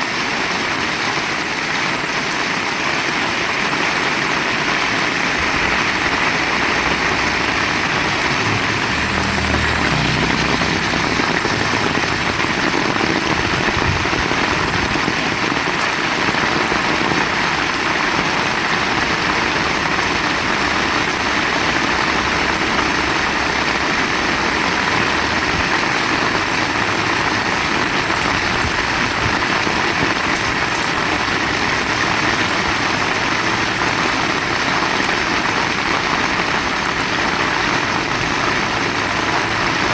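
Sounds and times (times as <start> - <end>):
heavy rain: 0.0 - 39.9
low rumble: 5.3 - 15.4.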